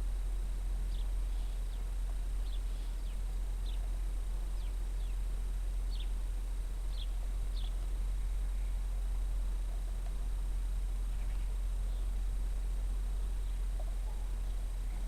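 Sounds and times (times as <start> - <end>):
steady low rumble: 0.0 - 15.0
small birds calling: 0.9 - 9.0, 11.0 - 12.3, 13.1 - 15.0.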